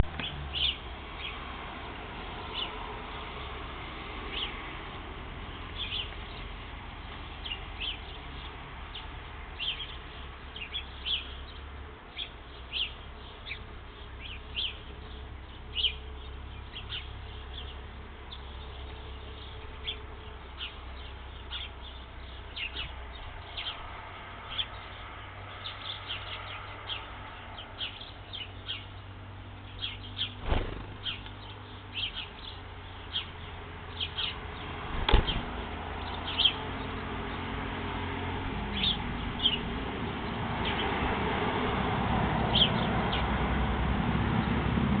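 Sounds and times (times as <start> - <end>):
birds chirping: 0.0 - 1.5, 2.4 - 4.7, 5.6 - 41.2, 42.5 - 43.3
steady low rumble: 30.2 - 32.1.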